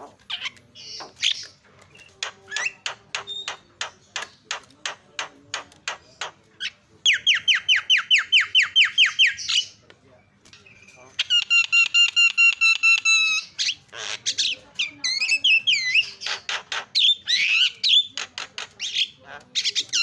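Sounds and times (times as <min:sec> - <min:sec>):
bird clicking notes: 0:00.3 - 0:06.4.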